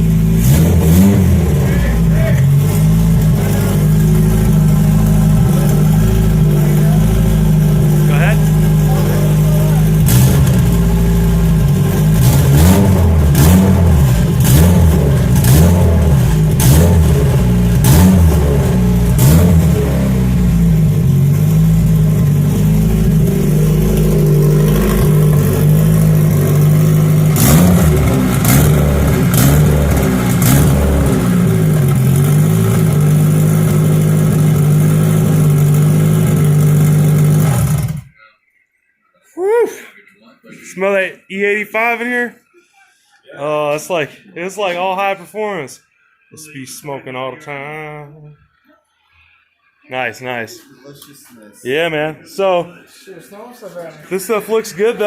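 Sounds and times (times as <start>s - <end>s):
car engine revving: 0.0s - 38.1s, 54.0s - 55.0s
sharp exhaust cracks: 0.0s - 38.1s.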